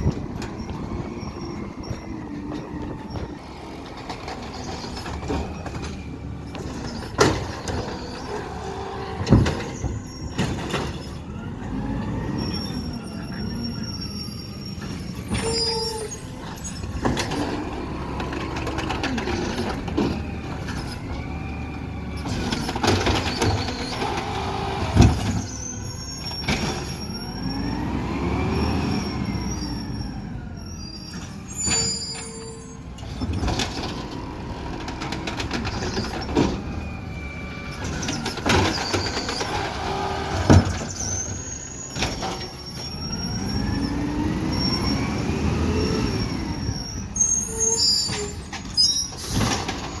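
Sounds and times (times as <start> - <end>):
garbage truck engine revving: 0.0 - 50.0
high hydraulic squeals: 0.0 - 50.0.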